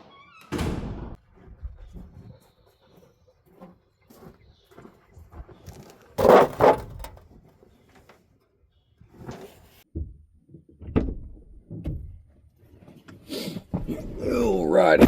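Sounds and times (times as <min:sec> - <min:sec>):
hand tools clattering: 0:06.2 - 0:07.2.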